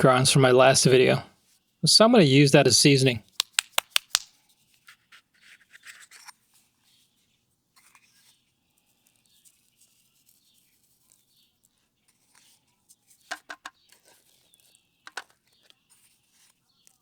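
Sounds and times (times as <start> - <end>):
faint rustles and light ticks: 4.4 - 17.0.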